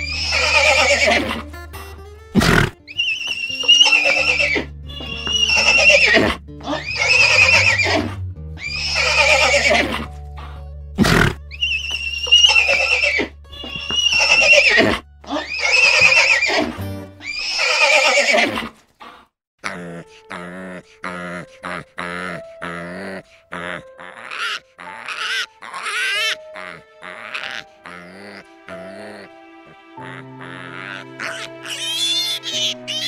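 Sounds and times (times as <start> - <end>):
high-pitched animal calls: 0.0 - 1.4, 2.4 - 18.7, 21.0 - 28.9, 30.0 - 33.0
background music with bass line: 0.0 - 17.3.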